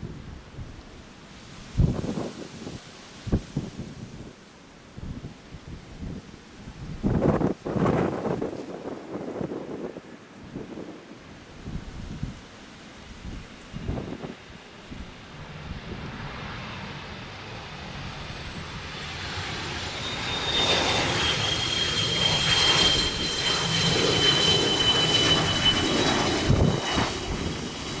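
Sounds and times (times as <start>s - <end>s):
high jet engine whine: 3.7s - 28.0s
jet engines roaring: 7.1s - 28.0s.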